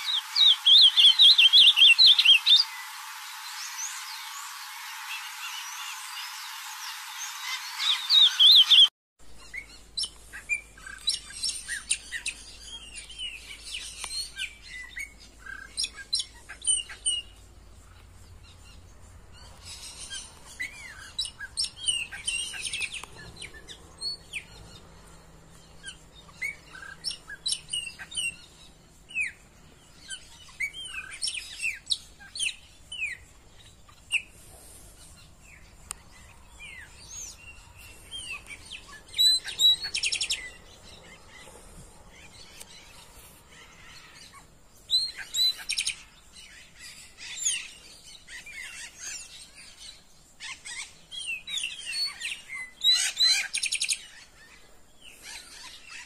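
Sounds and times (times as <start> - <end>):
loud fast bird trill: 0.0 - 17.4, 36.6 - 41.5
birds chirping: 0.0 - 56.0.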